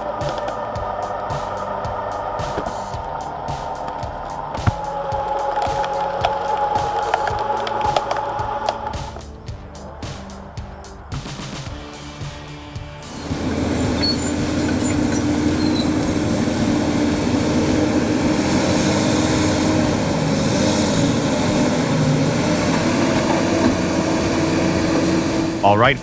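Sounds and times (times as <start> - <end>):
music: 0.0 - 26.0
truck diesel engine droning: 13.0 - 26.0.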